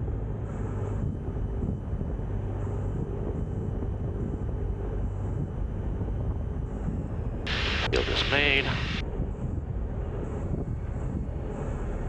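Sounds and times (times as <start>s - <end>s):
airplane engine and propeller drone: 0.0s - 12.0s.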